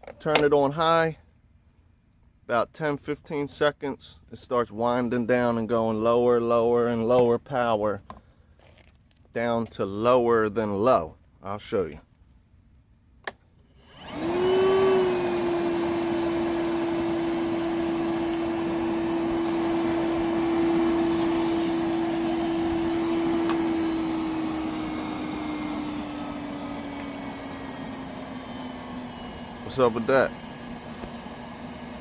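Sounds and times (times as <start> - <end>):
vacuum motor whine: 13.7 - 32.0.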